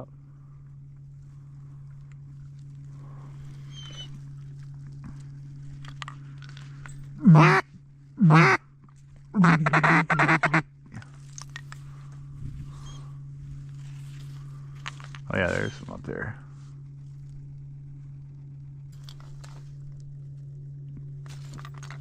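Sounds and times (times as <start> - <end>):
steady low hum: 0.0 - 22.0
duck call quacks: 7.2 - 7.6, 8.2 - 8.6, 9.4 - 10.6.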